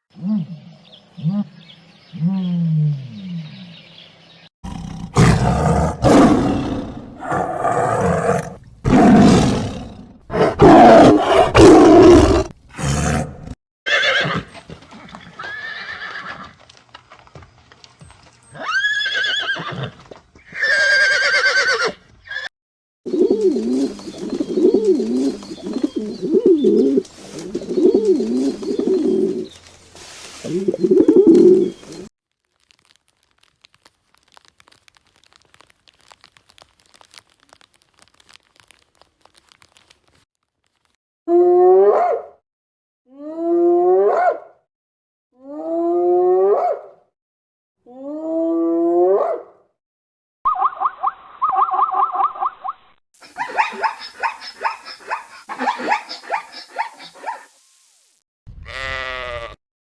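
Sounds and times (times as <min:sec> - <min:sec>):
falling animal calls: 0:32.8 - 0:39.8.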